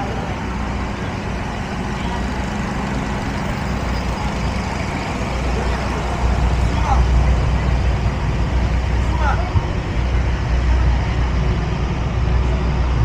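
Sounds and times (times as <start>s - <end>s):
engine idling hum: 0.0s - 13.0s
street traffic: 0.0s - 13.0s.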